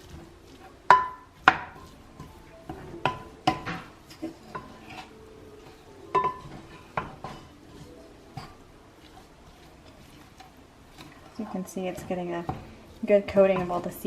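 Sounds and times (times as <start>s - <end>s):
utensil scraping against a pot: 0.0s - 14.0s.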